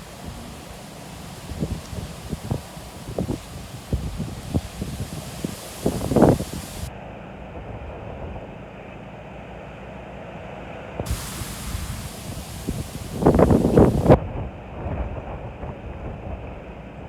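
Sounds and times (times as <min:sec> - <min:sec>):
wind buffeting microphone: 0:00.0 - 0:06.9, 0:11.0 - 0:16.7.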